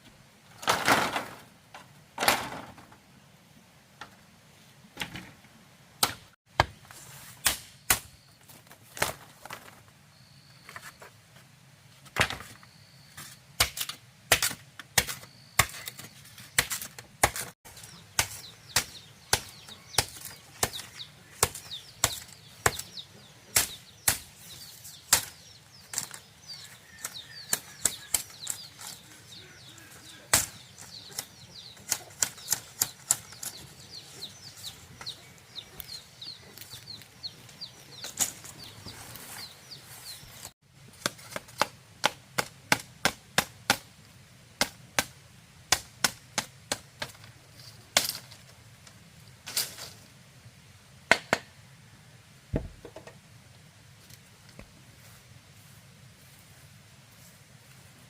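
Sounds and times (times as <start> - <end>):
faint bird chirps: 10.1 - 11.2, 12.4 - 13.4.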